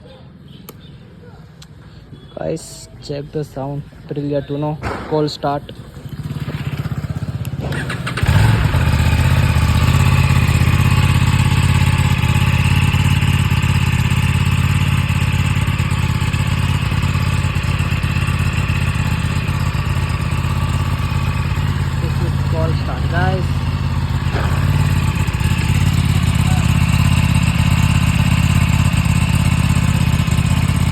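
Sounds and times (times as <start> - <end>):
motorcycle engine idling: 4.9 - 30.9
engine starter turning over: 5.8 - 12.0, 19.7 - 28.6.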